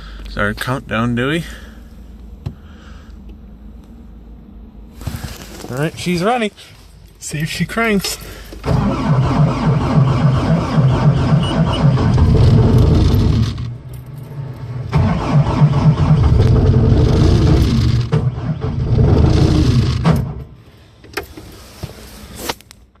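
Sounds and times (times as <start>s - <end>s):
starter motor cranking diesel engine: 8.2s - 13.8s, 14.4s - 20.6s.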